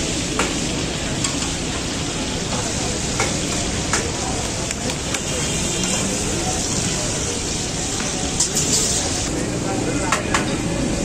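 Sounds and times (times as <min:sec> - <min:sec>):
meat sizzling in oil: 0:00.0 - 0:10.0.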